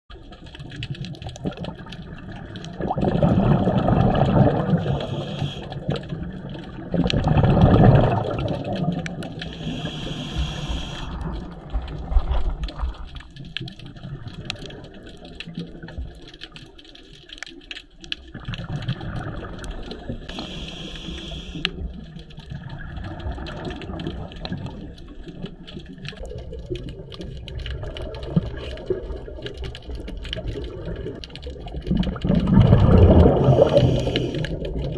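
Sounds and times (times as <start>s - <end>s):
exhaled bubbles rumbling: 0.1s - 34.9s
regulator hiss on inhale: 4.7s - 6.0s, 9.4s - 11.4s, 20.2s - 21.9s, 33.4s - 34.8s.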